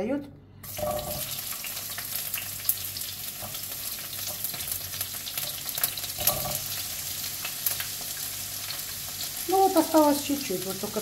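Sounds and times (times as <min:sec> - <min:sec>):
bell pepper sizzling in oil: 0:00.6 - 0:11.0.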